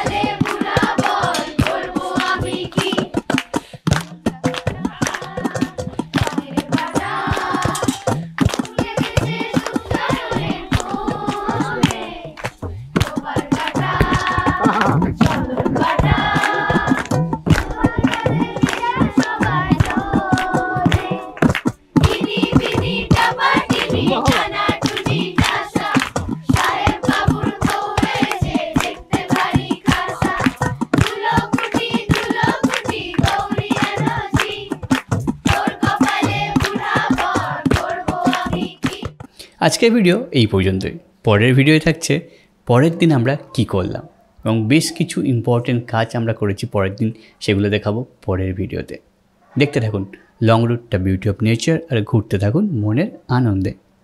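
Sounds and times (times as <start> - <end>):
group singing: 0.0 - 3.4, 4.2 - 39.2
sharp hand claps: 0.0 - 39.5.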